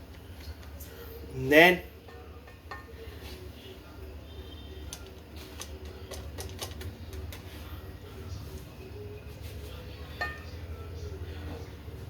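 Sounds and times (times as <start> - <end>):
kitchen utensils clicking and tapping: 4.9 - 7.6.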